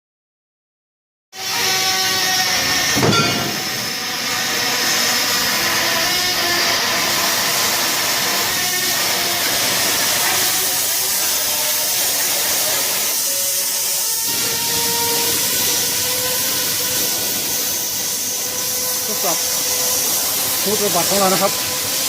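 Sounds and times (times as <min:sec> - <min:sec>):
exhaust fan rushing hiss: 0:14.2 - 0:22.0.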